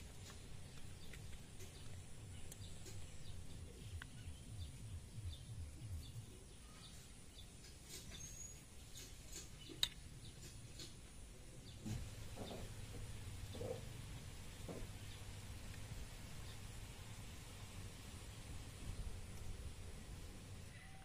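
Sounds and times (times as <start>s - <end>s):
low rumble: 0.0s - 6.5s
bird chirps: 0.7s - 10.9s.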